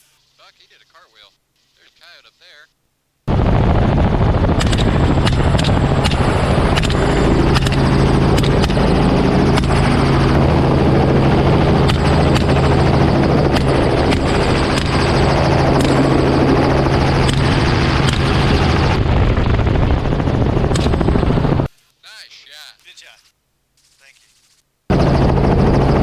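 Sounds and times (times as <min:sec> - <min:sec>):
helicopter in flight: 0:03.3 - 0:21.7, 0:24.9 - 0:26.0.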